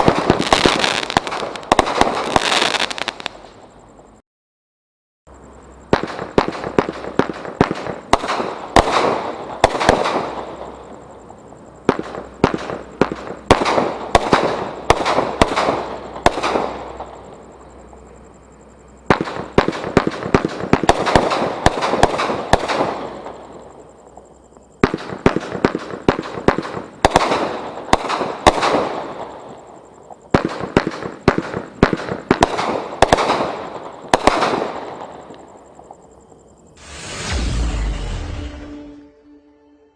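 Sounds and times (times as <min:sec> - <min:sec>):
fireworks banging: 0:00.0 - 0:03.5, 0:05.8 - 0:11.0, 0:11.8 - 0:17.5, 0:19.1 - 0:29.6, 0:30.3 - 0:35.5, 0:36.8 - 0:39.1
fireworks crackle: 0:00.0 - 0:03.6, 0:05.9 - 0:11.0, 0:24.8 - 0:35.5, 0:36.8 - 0:39.0.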